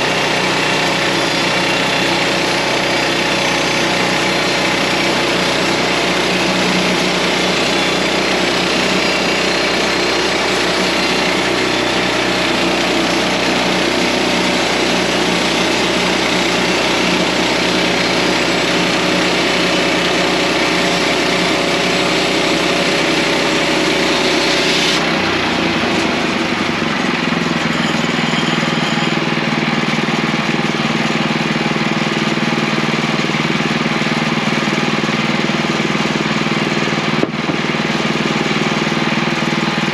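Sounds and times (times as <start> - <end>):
sawmill engine running: 0.0 - 39.9
saw blade hissing through log: 0.1 - 25.1.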